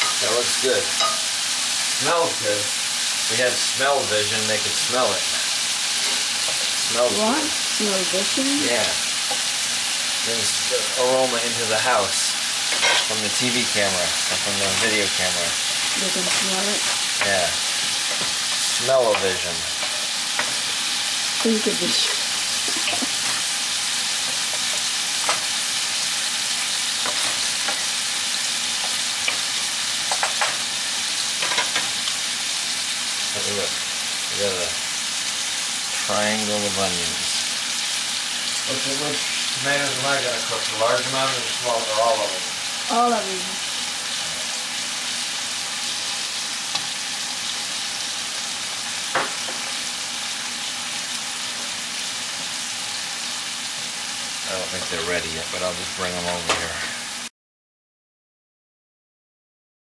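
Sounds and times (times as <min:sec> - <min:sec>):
onions sizzling in a pan: 0:00.0 - 0:57.3
utensil tapping a pan: 0:01.0 - 0:01.3.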